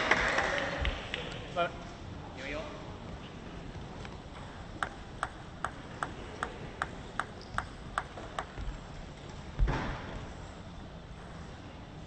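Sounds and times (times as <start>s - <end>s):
table tennis ball clicking: 4.8s - 8.8s
loud thump: 9.6s - 10.1s.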